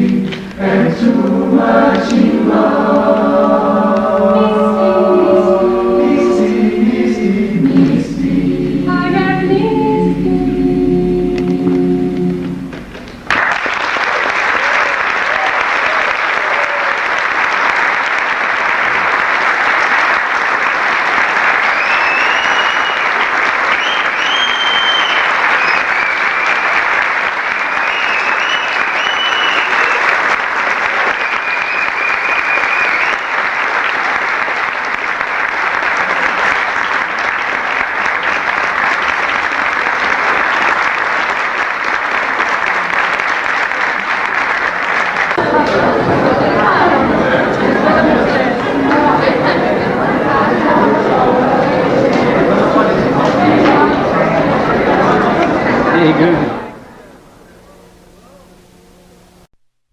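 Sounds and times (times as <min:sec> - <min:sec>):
choir singing a chord: 0:00.0 - 0:13.0, 0:45.3 - 0:56.9
audience applause: 0:12.4 - 0:56.8
high whistles: 0:21.6 - 0:26.8, 0:27.5 - 0:30.2, 0:31.1 - 0:33.5.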